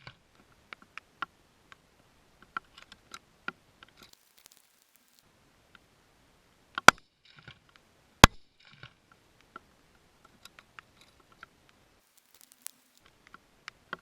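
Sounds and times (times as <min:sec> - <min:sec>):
faint ticks: 0:02.4 - 0:05.9, 0:06.7 - 0:14.0
sharp loud clicks: 0:08.2 - 0:08.7.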